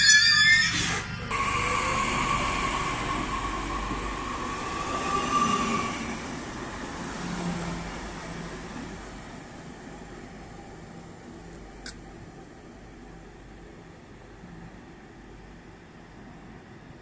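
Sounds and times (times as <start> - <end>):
high electric whine: 0.0 - 6.7
train coaches rumbling: 0.9 - 16.8.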